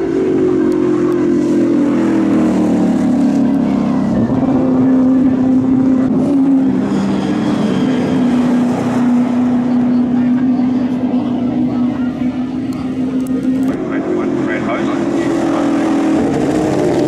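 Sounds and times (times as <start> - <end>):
racing car engines: 0.0 - 17.0.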